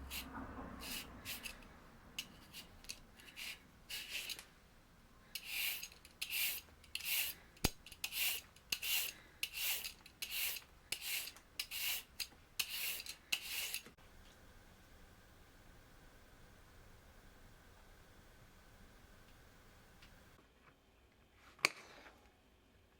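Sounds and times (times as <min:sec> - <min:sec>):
rasping scraping strokes: 0:00.0 - 0:04.5, 0:05.4 - 0:14.0.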